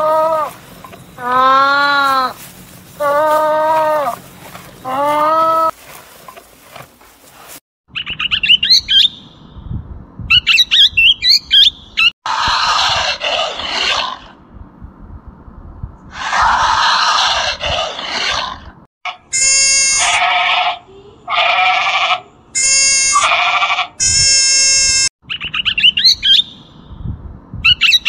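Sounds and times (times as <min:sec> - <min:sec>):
parrots chirping and whistling: 0:07.9 - 0:09.2, 0:25.3 - 0:26.6
parrot harsh rasping calls: 0:16.2 - 0:24.6.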